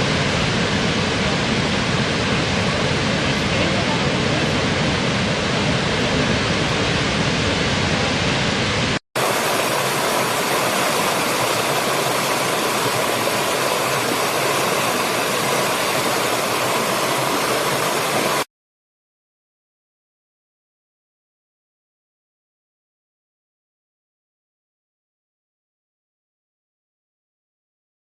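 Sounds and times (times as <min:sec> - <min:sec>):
waterfall roaring: 0:00.0 - 0:18.5.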